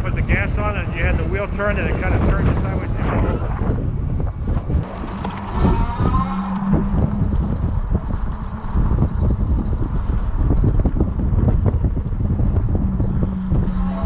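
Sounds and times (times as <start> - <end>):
wind buffeting microphone: 0.0 - 14.0
faint voices: 4.9 - 7.2, 13.0 - 14.0.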